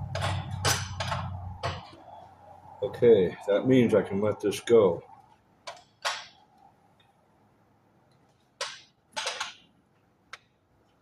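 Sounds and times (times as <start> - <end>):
tools clattering: 0.0 - 2.0, 5.7 - 6.4, 8.3 - 9.7.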